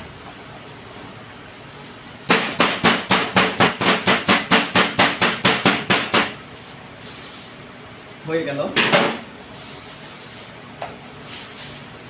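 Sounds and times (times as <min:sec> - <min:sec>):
meat hammer pounding chicken: 0:02.2 - 0:06.4.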